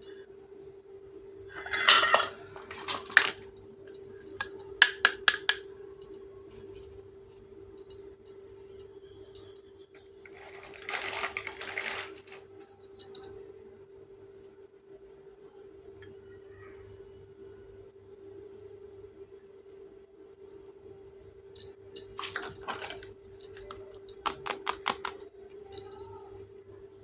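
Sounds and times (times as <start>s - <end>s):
faint steady hum: 0.0s - 27.0s
toy kitchen pieces clinking: 1.5s - 5.6s, 9.4s - 13.3s, 21.9s - 26.1s
rustling and scraping: 10.2s - 12.8s.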